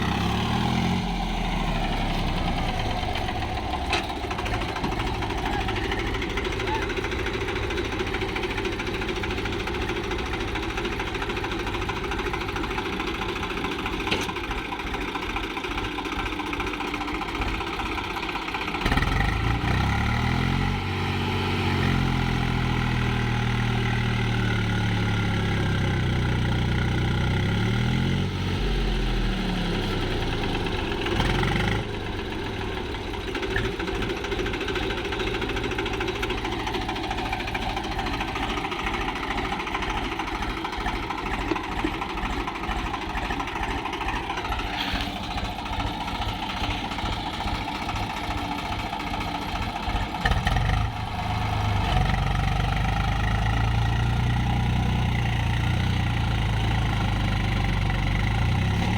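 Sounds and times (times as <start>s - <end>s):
tractor engine throbbing: 0.0s - 58.9s
deeper engine note: 28.4s - 33.4s.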